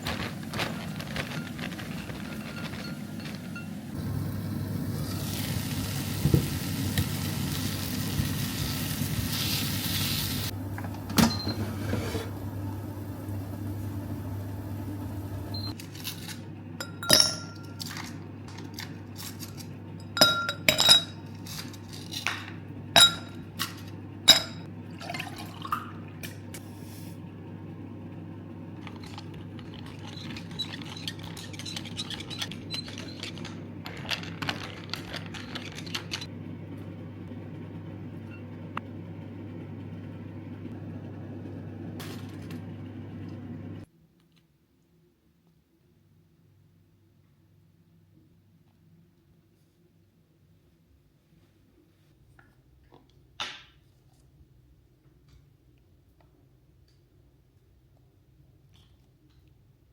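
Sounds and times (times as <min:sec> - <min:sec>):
dishes and cutlery clinking: 0:20.0 - 0:21.7.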